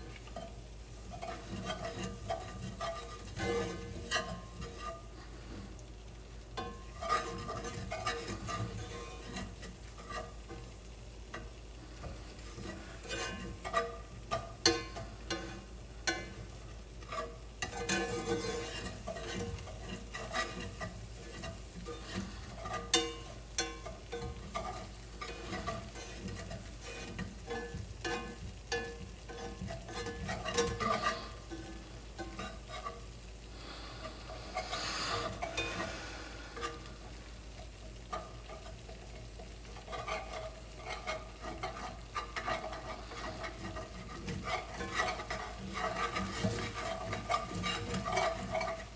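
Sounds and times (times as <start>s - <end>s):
whisk tapping against pan: 0.0s - 5.8s, 6.5s - 33.2s, 34.0s - 48.9s
light sizzle: 0.0s - 48.9s.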